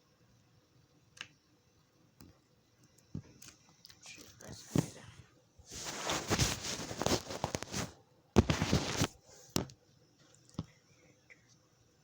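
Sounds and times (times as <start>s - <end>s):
small clicks and pops: 1.0s - 1.4s, 2.2s - 4.5s
crackly rustling: 2.9s - 9.6s.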